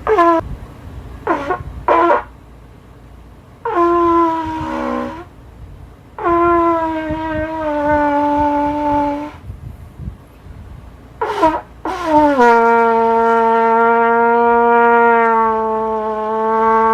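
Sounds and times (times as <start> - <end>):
trumpet long notes: 0.0 - 0.5, 1.2 - 2.4, 3.6 - 5.4, 6.2 - 9.4, 11.2 - 16.9.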